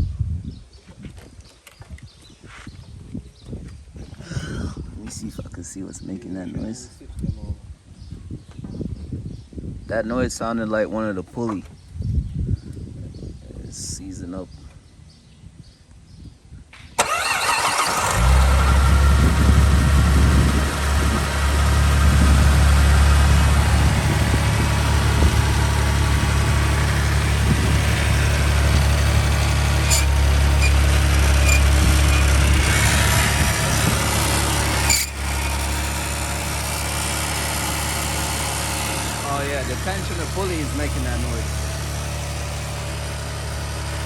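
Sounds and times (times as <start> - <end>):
car engine starting and running: 17.0 - 44.0
belt tensioner pulley noise: 28.8 - 35.8.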